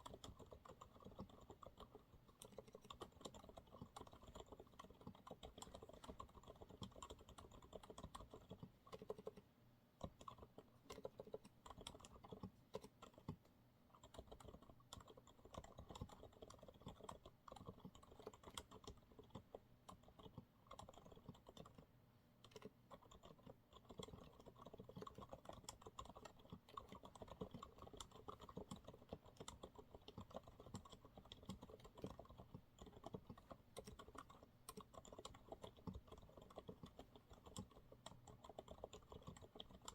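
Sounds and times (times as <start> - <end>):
soft keyboard typing: 0.0 - 39.9.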